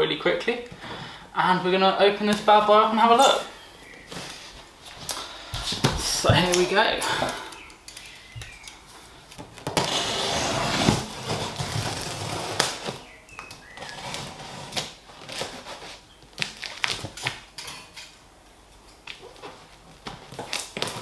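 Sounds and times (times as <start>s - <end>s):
packing rustling and knocking: 3.9s - 6.8s
cardboard box ripping open: 9.6s - 13.1s.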